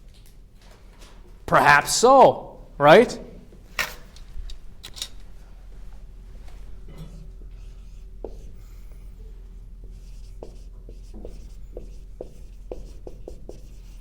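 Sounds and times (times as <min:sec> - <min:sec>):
pen squeaking on a board: 0:07.1 - 0:09.0, 0:09.9 - 0:14.0.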